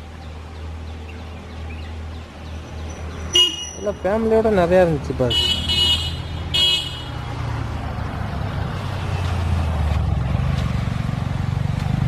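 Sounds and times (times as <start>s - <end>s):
vehicle horn: 3.3s - 4.0s, 5.3s - 7.2s.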